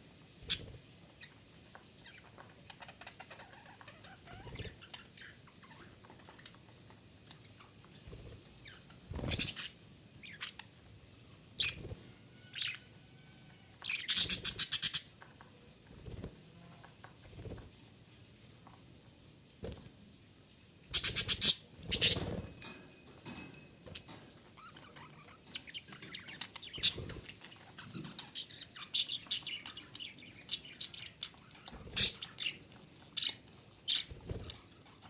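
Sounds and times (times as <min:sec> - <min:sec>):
budgerigar chirping and chattering: 0:13.9 - 0:15.1, 0:21.0 - 0:22.3, 0:24.6 - 0:31.2, 0:31.9 - 0:32.6.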